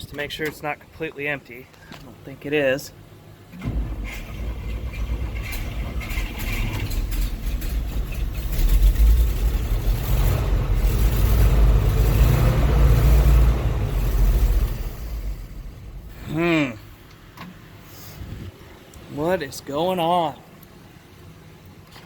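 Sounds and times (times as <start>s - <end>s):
car engine cranking: 3.3s - 17.8s.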